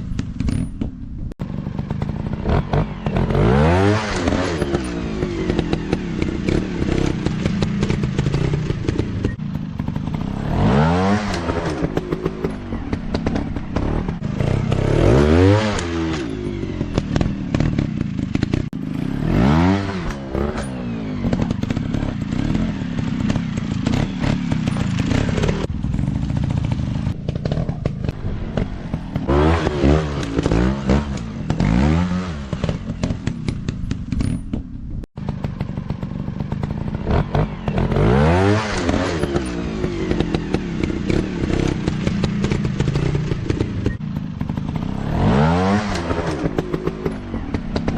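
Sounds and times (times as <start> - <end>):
dirt bike engine revving: 1.4 - 47.9
bike clattering over rough ground: 19.7 - 47.9.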